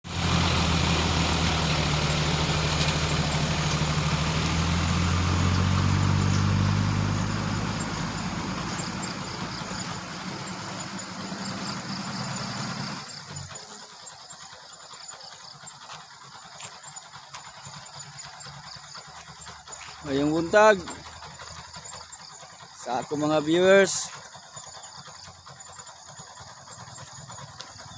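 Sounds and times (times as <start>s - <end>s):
vehicle engine humming: 0.0s - 27.9s
faint high-pitched chirping: 7.0s - 27.9s.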